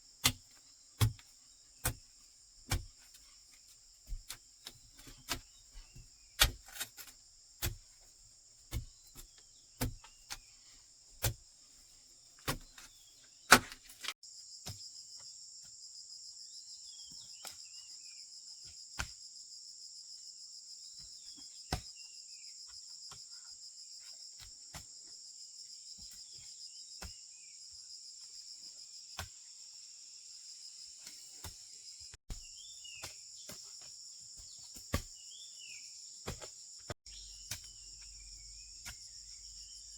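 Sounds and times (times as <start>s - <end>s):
crickets and insects chorus: 0.0s - 39.9s
faint bird chirps: 16.0s - 18.8s, 30.3s - 39.9s.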